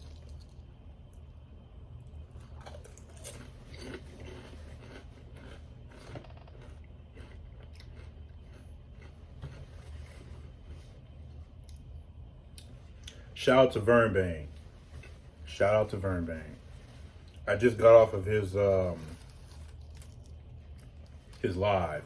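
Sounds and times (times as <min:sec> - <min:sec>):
steady low hum: 0:00.0 - 0:22.0
crunchy biting and chewing: 0:02.1 - 0:10.6, 0:18.7 - 0:21.9.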